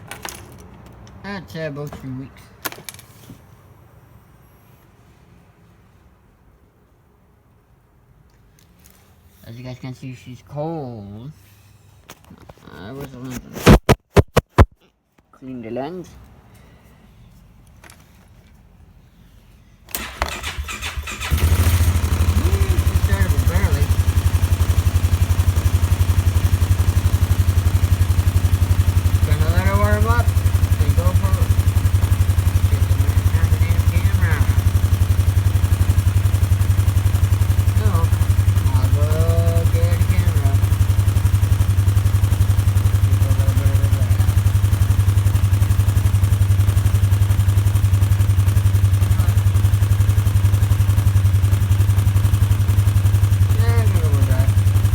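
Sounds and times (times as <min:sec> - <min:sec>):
engine idling: 0:20.0 - 0:54.9.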